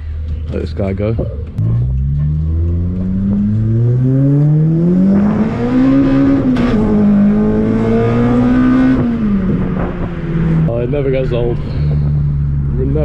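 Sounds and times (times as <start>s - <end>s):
car engine revving hard: 1.7s - 10.7s.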